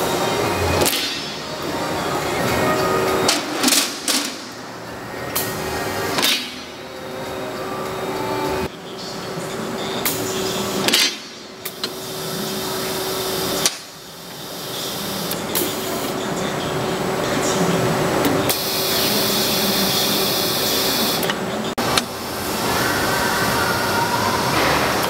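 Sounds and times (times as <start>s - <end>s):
grinding machine hum: 0.0s - 10.8s.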